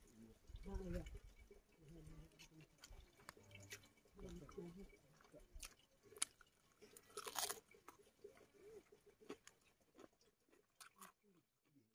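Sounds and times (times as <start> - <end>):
person chewing and crunching food: 2.4 - 4.5, 5.1 - 11.8.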